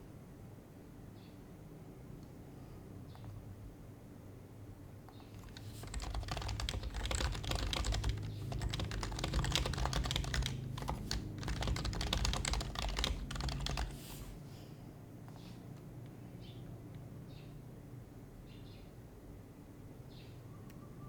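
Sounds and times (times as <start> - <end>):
fast keyboard typing: 5.4 - 14.4.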